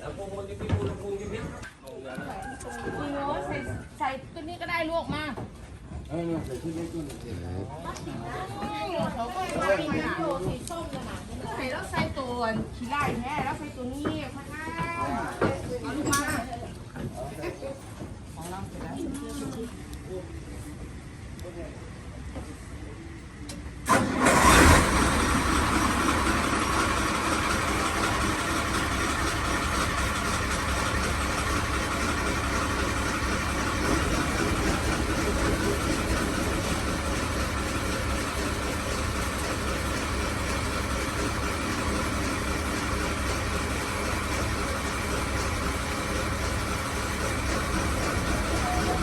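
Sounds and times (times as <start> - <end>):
boat engine running: 23.9 - 49.0.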